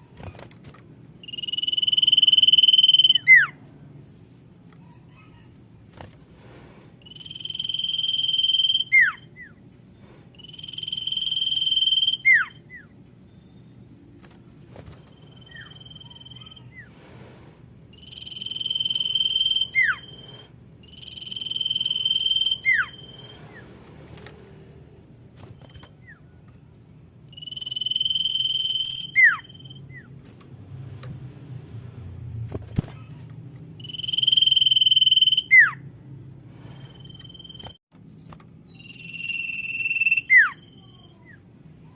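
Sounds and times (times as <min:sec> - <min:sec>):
bird high whistles: 0:01.2 - 0:03.6, 0:07.0 - 0:09.6, 0:10.4 - 0:12.9, 0:18.0 - 0:23.6, 0:27.4 - 0:30.1, 0:33.8 - 0:35.8, 0:38.7 - 0:41.0.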